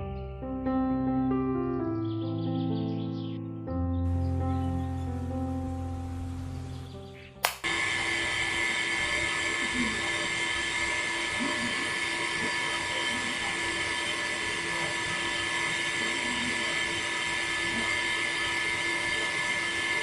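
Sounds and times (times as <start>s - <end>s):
small electric motor whining: 7.7s - 20.0s.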